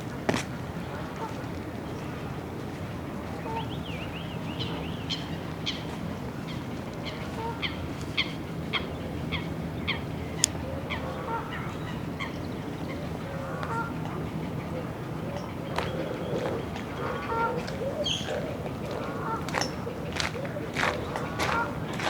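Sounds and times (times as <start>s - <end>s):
bird calling: 7.0s - 22.0s.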